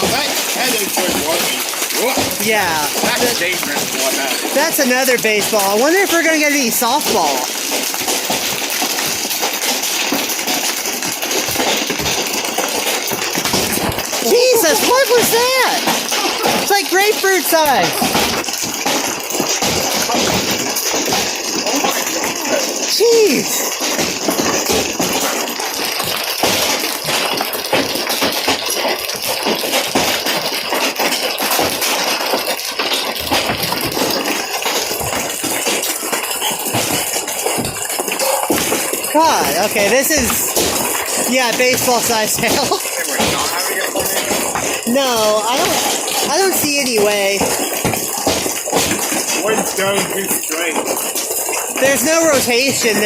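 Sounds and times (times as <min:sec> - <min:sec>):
heavy rain hissing: 0:00.0 - 0:08.3, 0:13.7 - 0:18.3, 0:21.6 - 0:25.6, 0:37.7 - 0:47.2
hailstones knocking on hard surfaces: 0:00.0 - 0:53.0.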